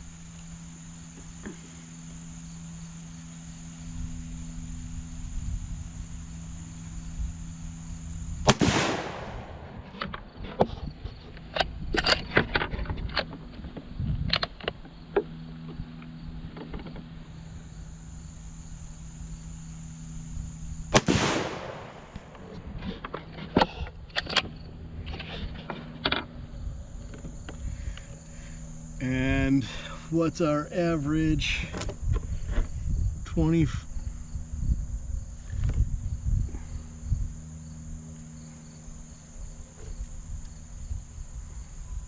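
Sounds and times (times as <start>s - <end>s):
rifle shots with echo: 8.5s - 10.0s, 20.9s - 22.5s.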